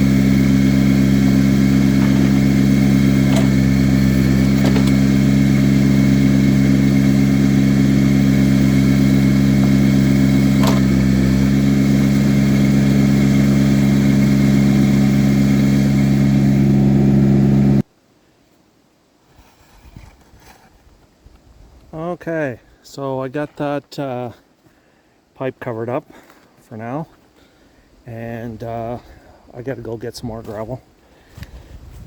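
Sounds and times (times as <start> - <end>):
earth-moving machine engine running: 0.0 - 17.8.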